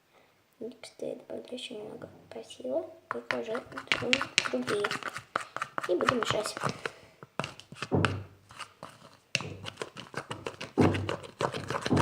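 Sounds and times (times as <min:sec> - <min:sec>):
slime stirred in a bowl: 0:03.1 - 0:12.0.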